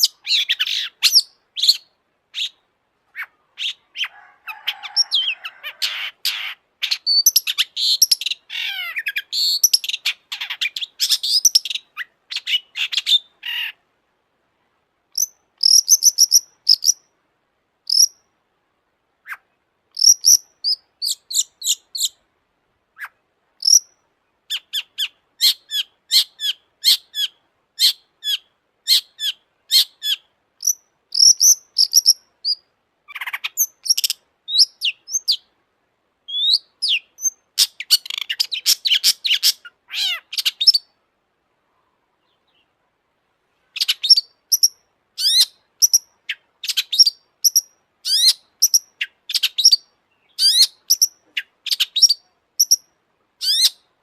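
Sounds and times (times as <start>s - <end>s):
bird warbling: 37.6s - 40.8s.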